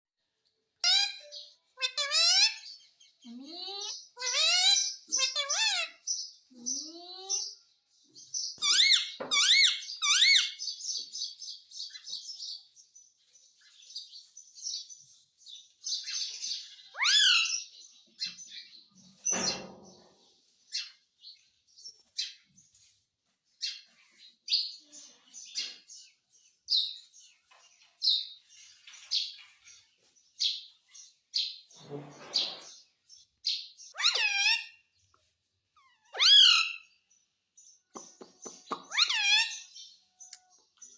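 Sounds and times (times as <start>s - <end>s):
parrot chattering: 0.8s - 2.7s, 3.4s - 6.1s, 33.9s - 34.7s, 35.8s - 36.8s, 38.5s - 39.6s
parrot chirping and calling: 0.8s - 7.6s, 8.3s - 12.2s, 15.8s - 19.4s, 33.4s - 35.0s, 35.7s - 37.0s, 38.0s - 40.5s.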